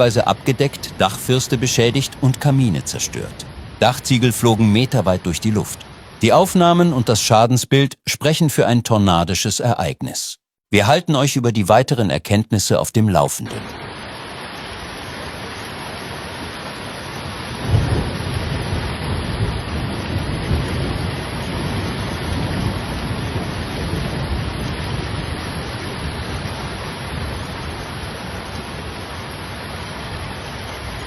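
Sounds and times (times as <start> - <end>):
heavy rain: 0.0 - 9.8, 13.2 - 31.0
rolling thunder rumble: 17.5 - 29.0.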